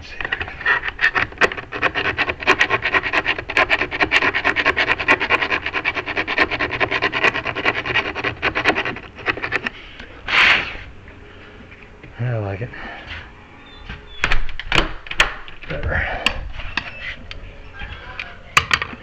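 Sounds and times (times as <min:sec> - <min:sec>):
hand tool scraping metal: 0:00.1 - 0:10.8.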